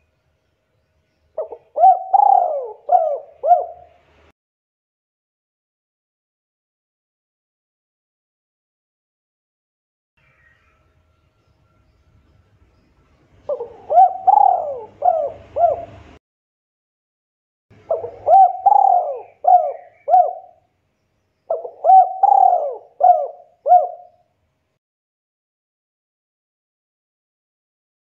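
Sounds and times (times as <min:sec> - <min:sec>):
dove cooing: 0:01.4 - 0:04.0, 0:13.5 - 0:16.2, 0:17.8 - 0:20.6, 0:21.5 - 0:24.2.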